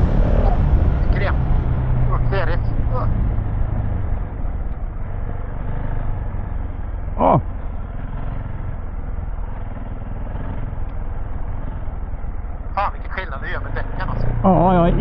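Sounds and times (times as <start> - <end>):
motorcycle engine running: 0.0 - 15.0
wind and road noise: 0.0 - 15.0
person exclaiming: 7.2 - 7.4.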